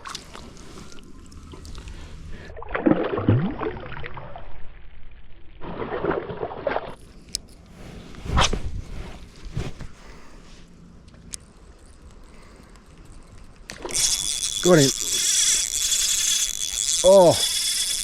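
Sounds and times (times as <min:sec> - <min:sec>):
water sloshing and splashing: 0:00.0 - 0:04.4, 0:05.6 - 0:07.0.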